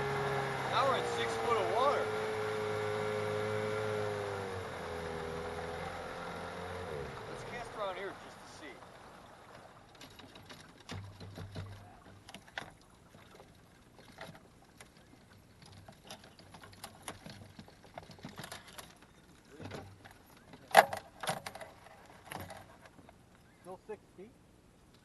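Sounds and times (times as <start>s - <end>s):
fishing gear knocks and clicks: 9.9s - 23.2s.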